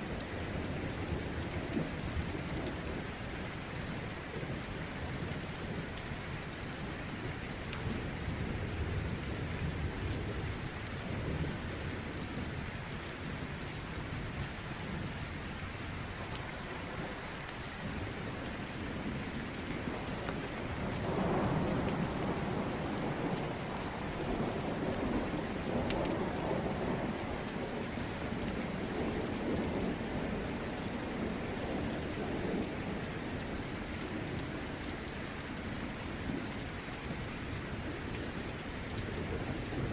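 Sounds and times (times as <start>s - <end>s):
steady rain falling: 0.0s - 39.9s
low rolling thunder: 19.8s - 27.6s.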